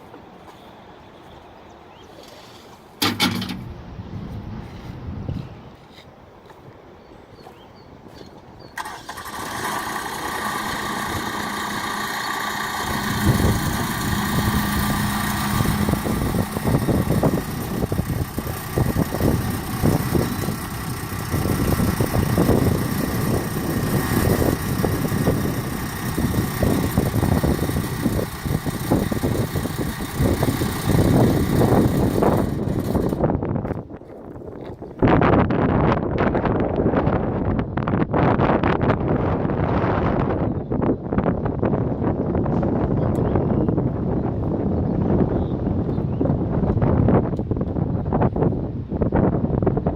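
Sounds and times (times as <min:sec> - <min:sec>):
diesel tractor engine running: 0:08.8 - 0:33.4.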